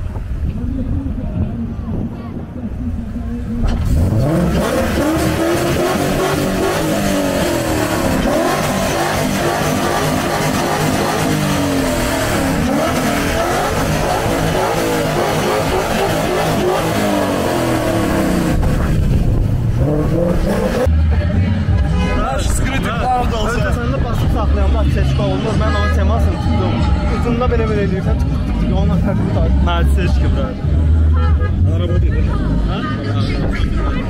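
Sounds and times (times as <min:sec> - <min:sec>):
car engine revving hard: 0:03.8 - 0:20.9.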